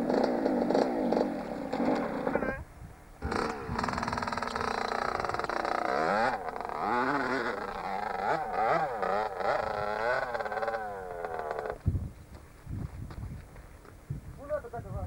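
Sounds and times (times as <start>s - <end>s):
motocross engine revving: 0.0s - 2.6s, 3.2s - 11.9s.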